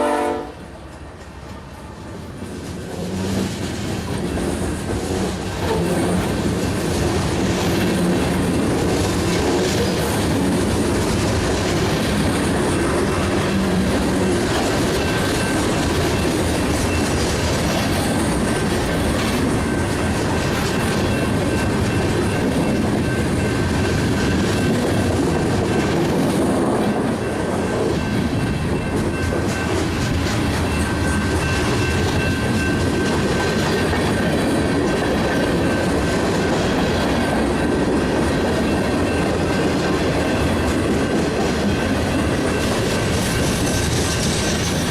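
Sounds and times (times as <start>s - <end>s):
rail-joint clickety-clack: 0.0s - 44.9s
train wheels rumbling: 0.0s - 44.9s.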